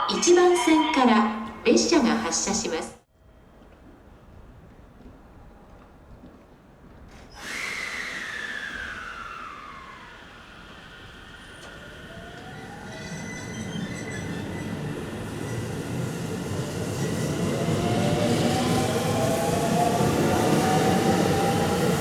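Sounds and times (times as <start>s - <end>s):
electric train motor whine: 7.3s - 22.0s
sudden hiss: 7.4s - 12.0s.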